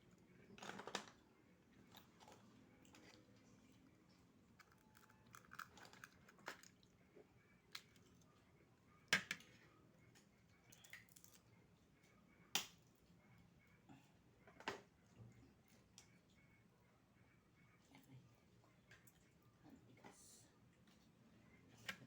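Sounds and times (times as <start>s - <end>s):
soft chewing: 1.1s - 8.6s.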